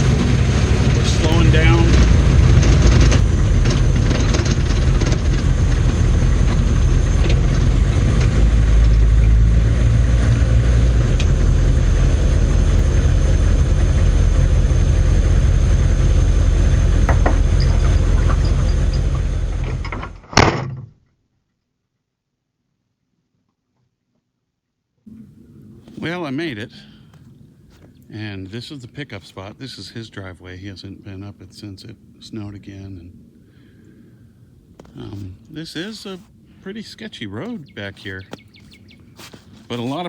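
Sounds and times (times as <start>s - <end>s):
diesel engine running: 0.0s - 20.0s, 37.4s - 40.0s.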